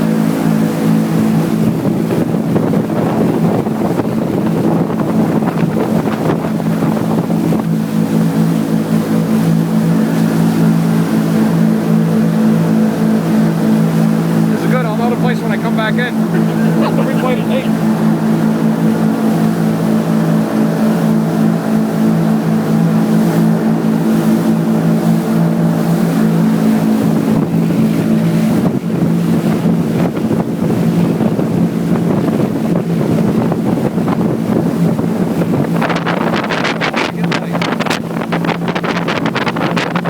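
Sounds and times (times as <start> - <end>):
motorboat engine running: 0.0 - 40.0
rushing wind and water: 0.0 - 40.0
wind buffeting microphone: 0.0 - 40.0.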